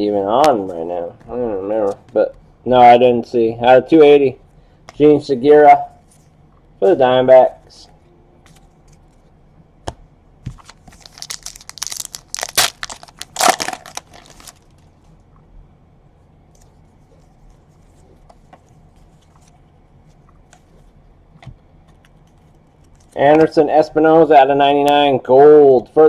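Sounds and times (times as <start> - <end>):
foil wrapper tearing and crinkling: 10.6 - 14.8.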